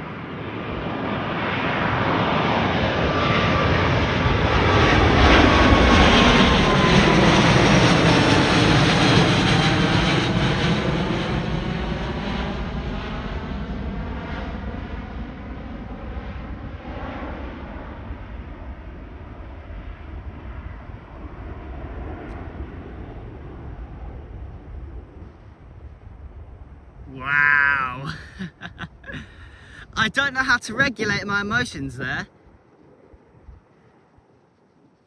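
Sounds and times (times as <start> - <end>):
jet engines rumbling at takeoff: 0.0 - 27.0.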